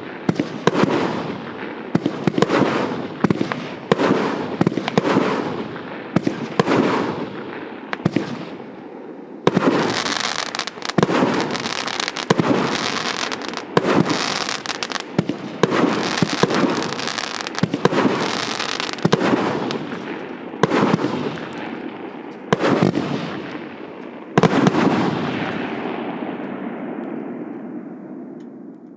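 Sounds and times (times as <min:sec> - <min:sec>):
fireworks reports: 0:00.0 - 0:27.5
hissing crackle of burning stars: 0:00.0 - 0:27.6.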